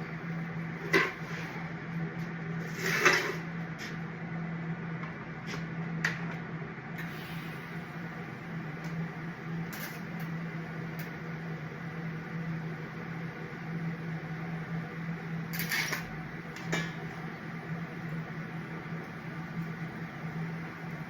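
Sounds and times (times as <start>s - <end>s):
welder humming with hiss: 7.0s - 21.0s.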